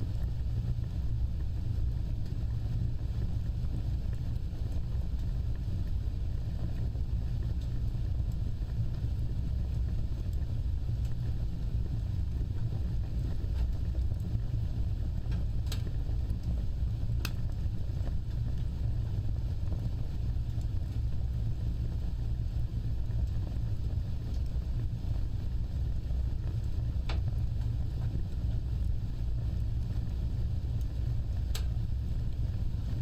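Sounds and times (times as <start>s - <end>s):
fire crackling pops: 0.0s - 33.0s
wood fire rumbling: 0.0s - 33.0s
faint ticks: 31.5s - 31.8s.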